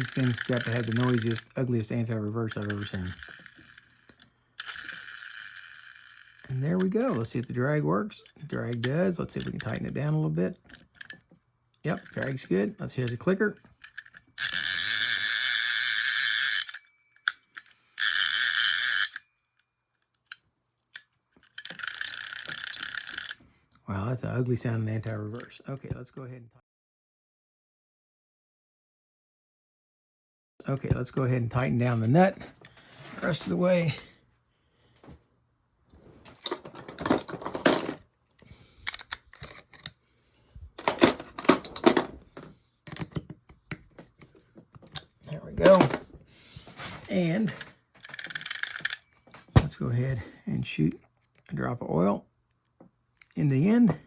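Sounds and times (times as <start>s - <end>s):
fishing reel ratchet buzzing: 0.0s - 1.5s, 2.5s - 4.0s, 4.6s - 6.5s, 13.9s - 19.2s, 21.6s - 23.4s, 48.0s - 49.0s
fishing reel clicks: 0.0s - 1.6s, 2.5s - 7.2s, 13.8s - 19.2s, 21.4s - 23.4s, 48.0s - 49.0s
rough reel ratcheting: 0.0s - 7.3s, 13.8s - 19.2s, 21.4s - 23.4s, 47.5s - 49.1s.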